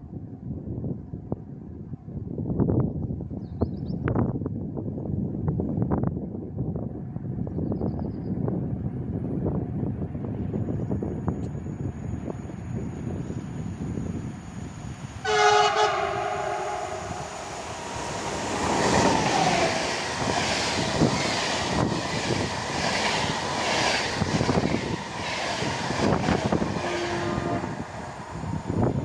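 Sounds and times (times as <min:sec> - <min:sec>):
train rushing past: 0:13.5 - 0:29.0
locomotive horn: 0:15.2 - 0:17.8, 0:26.5 - 0:28.0.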